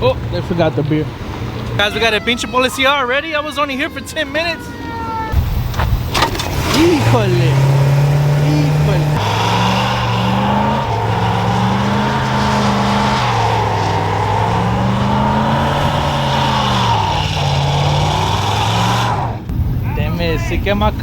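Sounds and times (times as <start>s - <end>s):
truck engine revving: 0.0s - 19.8s
tires screaming on pavement: 0.0s - 20.6s.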